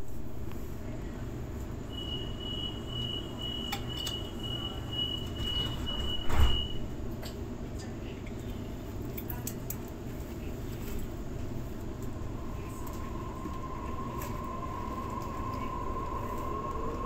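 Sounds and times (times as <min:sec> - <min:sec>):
low rumble inside train: 0:00.0 - 0:17.0
high steady whine: 0:11.8 - 0:17.0.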